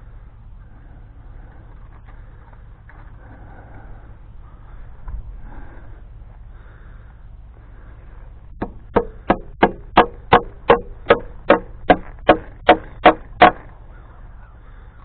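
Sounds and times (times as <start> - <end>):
hammer striking staples into wood: 8.6 - 13.7.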